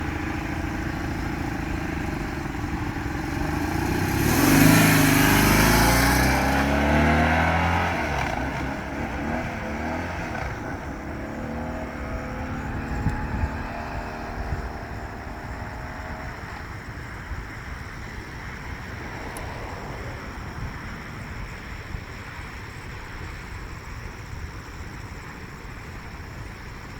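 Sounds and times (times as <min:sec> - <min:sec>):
motorcycle engine accelerating: 0:00.0 - 0:19.5.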